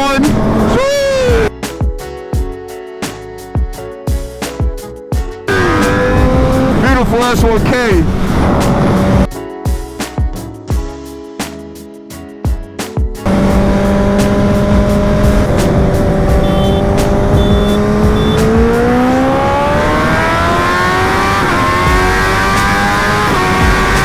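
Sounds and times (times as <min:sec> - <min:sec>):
motorcycle engine accelerating: 0:05.5 - 0:07.2, 0:08.0 - 0:09.3, 0:13.2 - 0:24.0
wind noise on microphone: 0:05.6 - 0:07.0, 0:07.6 - 0:09.3.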